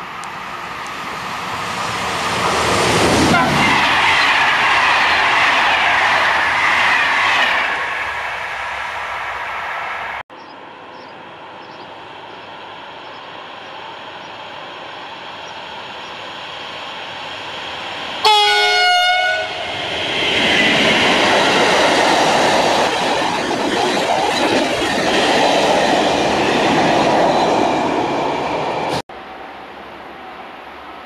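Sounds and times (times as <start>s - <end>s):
train wheels rattling on rails: 0.0s - 8.8s, 11.0s - 29.0s
train horn blast: 3.3s - 3.6s, 18.2s - 19.7s.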